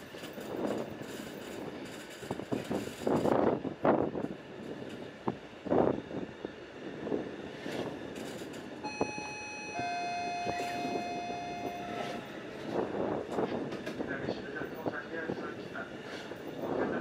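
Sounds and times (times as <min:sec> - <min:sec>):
train noise: 0:00.0 - 0:17.0
two-note tone: 0:08.9 - 0:12.3.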